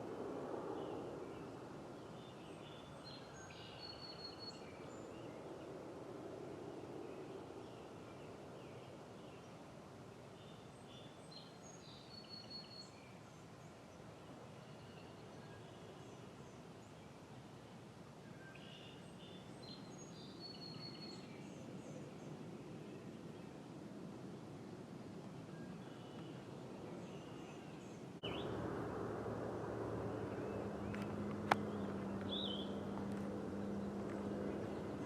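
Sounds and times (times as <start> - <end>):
faint songbird chirps: 0.8 - 5.8, 7.0 - 17.3, 18.2 - 23.7, 25.5 - 28.6, 29.8 - 35.0
steady low rush: 28.2 - 35.0.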